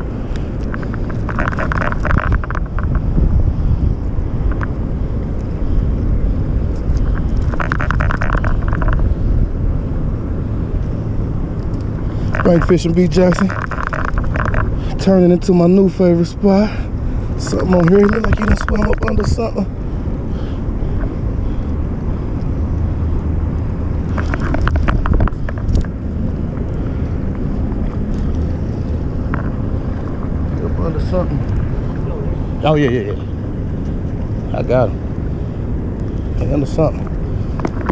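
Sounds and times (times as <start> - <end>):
sharp clicks: 0.0 - 3.1, 6.7 - 9.1, 11.5 - 14.8, 17.4 - 19.5
steady low rumble: 0.0 - 37.9
wind buffeting microphone: 0.0 - 37.9
fishing reel clicking: 17.4 - 19.3.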